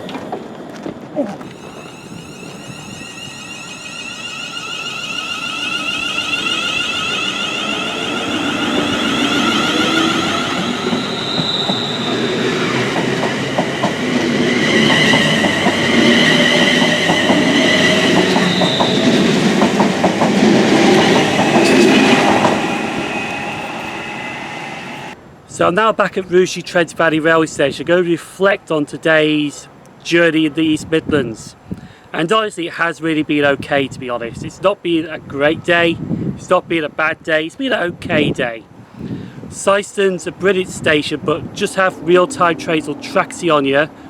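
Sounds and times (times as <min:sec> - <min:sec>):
wheels clicking over rail joints: 0:00.0 - 0:23.7
train approaching: 0:00.0 - 0:25.8, 0:37.5 - 0:44.0
high squealing of train wheels: 0:01.4 - 0:25.2, 0:38.1 - 0:44.0.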